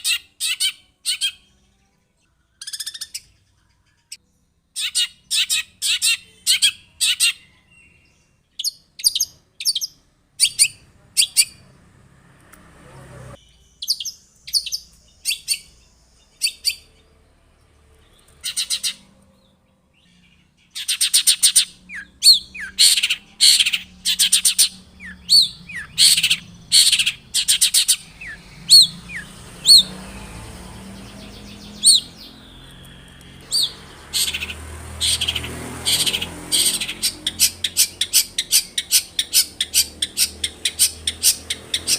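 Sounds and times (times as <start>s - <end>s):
shrike harsh chattering song: 20.6s - 41.9s
down-slurred bird whistles: 21.9s - 30.3s, 31.2s - 34.4s.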